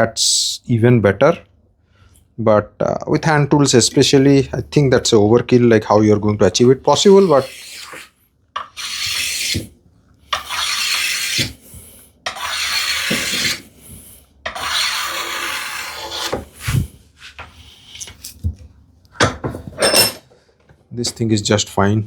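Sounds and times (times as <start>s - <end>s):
hand plane rasping on wood: 7.0s - 8.0s, 8.6s - 9.7s, 10.3s - 11.6s, 12.3s - 13.6s, 14.5s - 16.4s.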